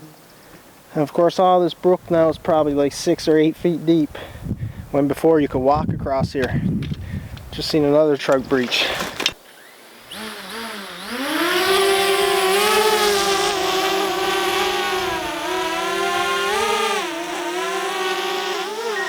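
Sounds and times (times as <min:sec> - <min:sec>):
drone propellers whining: 0:09.5 - 0:19.0.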